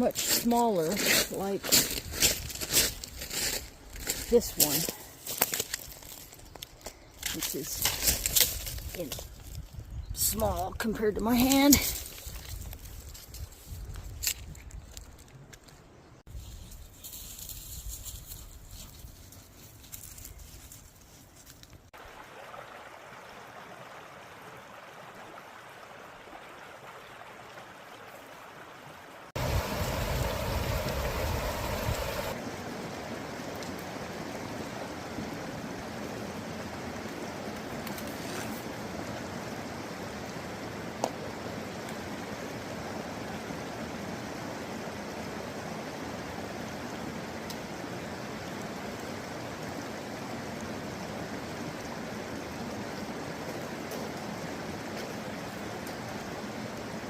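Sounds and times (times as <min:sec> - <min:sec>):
creek water flowing: 0:21.9 - 0:57.0.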